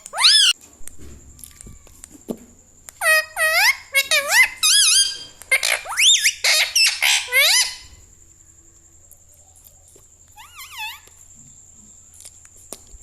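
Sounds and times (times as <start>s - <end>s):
parrot sharp rising calls: 0.0s - 0.6s.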